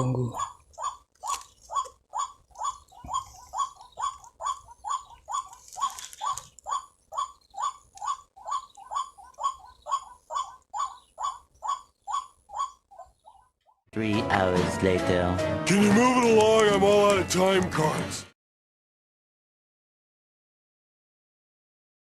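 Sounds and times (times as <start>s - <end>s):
waterhen calling: 0.0s - 13.5s.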